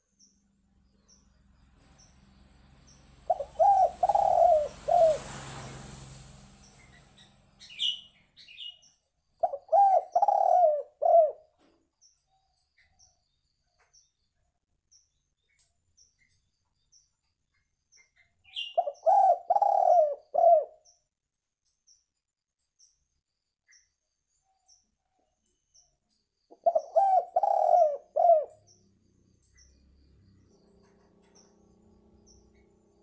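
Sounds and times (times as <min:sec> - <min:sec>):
dove cooing: 0:03.2 - 0:05.3, 0:09.4 - 0:11.6, 0:18.6 - 0:20.8, 0:26.5 - 0:28.8.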